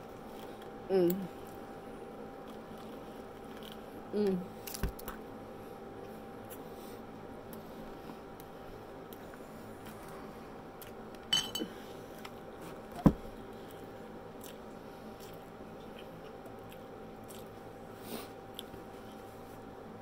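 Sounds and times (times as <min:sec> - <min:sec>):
faint steady hum: 0:00.0 - 0:20.0
person chewing: 0:02.4 - 0:05.2, 0:13.6 - 0:19.6
sharp ringing clink: 0:11.3 - 0:11.7.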